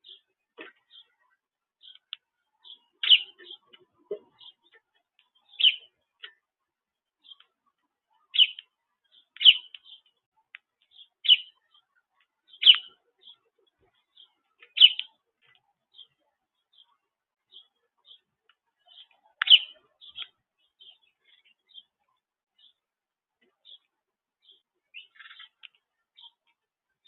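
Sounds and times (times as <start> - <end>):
songbird chirping: 0.0 - 27.0.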